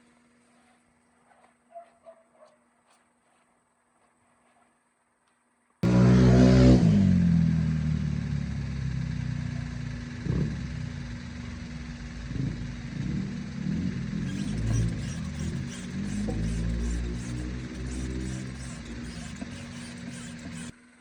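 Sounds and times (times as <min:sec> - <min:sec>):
vehicle engine starting and running: 0:05.8 - 0:21.0.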